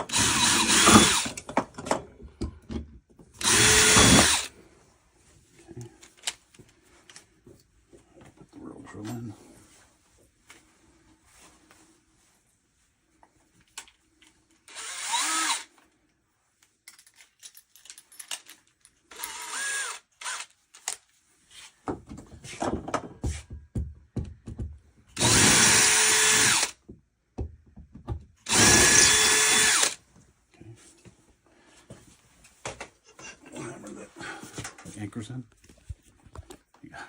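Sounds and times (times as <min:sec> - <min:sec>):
power drill boring into wall: 0:00.0 - 0:01.4, 0:03.4 - 0:04.5, 0:14.7 - 0:15.7, 0:19.1 - 0:20.5, 0:25.2 - 0:26.8, 0:28.4 - 0:30.0.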